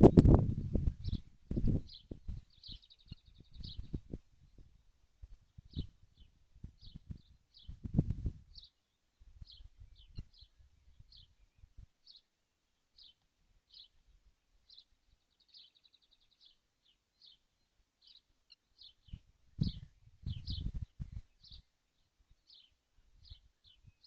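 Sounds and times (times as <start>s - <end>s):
faint bird chirps: 0.1s - 24.0s
faint low thumps: 19.1s - 21.2s.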